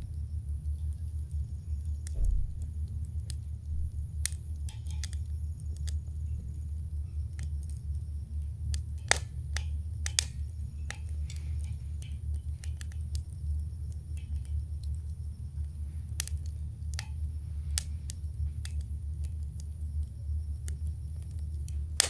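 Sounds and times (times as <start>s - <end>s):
campfire crackling and popping: 0.0s - 22.0s
steady low rumble: 0.0s - 22.0s.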